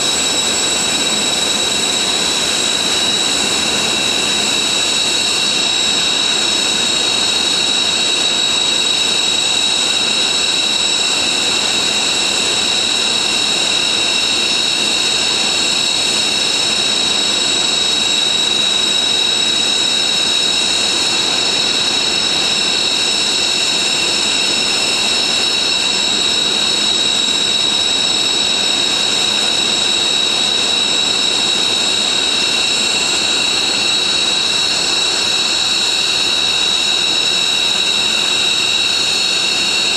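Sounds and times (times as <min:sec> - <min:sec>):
jet engines whining: 0:00.0 - 0:39.9
jet engine rushing noise: 0:11.9 - 0:39.9.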